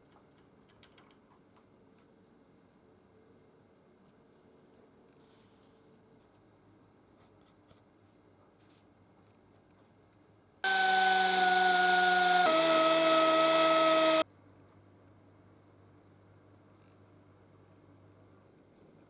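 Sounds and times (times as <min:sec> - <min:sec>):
power tool motor whine: 0:10.6 - 0:14.2.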